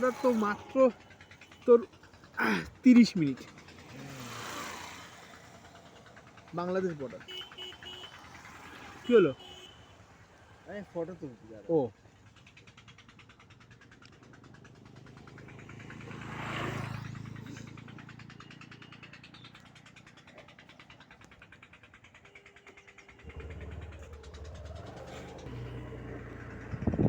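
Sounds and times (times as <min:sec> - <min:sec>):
road vehicle passing: 0:00.0 - 0:27.0
low engine hum: 0:12.0 - 0:27.0.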